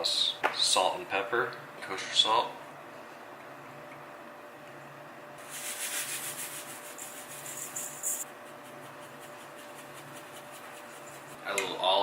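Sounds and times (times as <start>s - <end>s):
pepper mill grinding: 5.4s - 11.6s.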